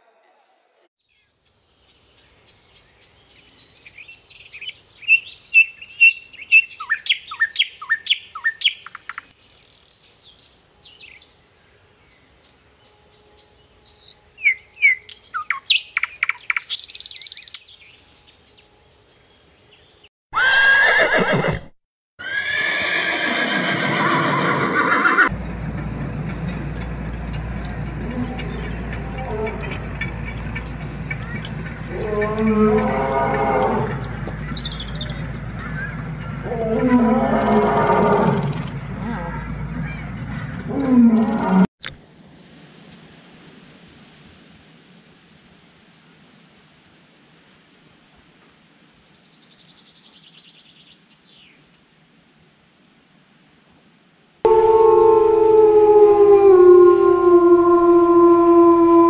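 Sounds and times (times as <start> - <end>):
birds chirping: 1.0 - 21.4, 26.2 - 38.7.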